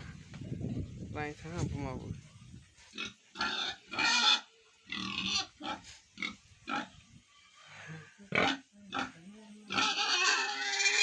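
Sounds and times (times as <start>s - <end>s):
piglets squealing and grunting: 3.0s - 6.9s, 9.7s - 11.0s.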